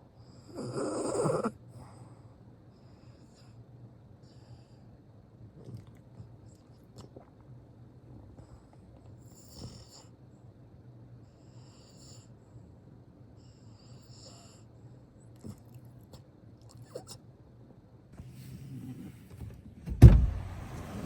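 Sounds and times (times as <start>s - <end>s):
dog snoring: 0.2s - 3.6s, 4.2s - 7.4s, 8.1s - 10.2s, 11.2s - 12.7s, 13.4s - 17.2s, 18.2s - 19.4s.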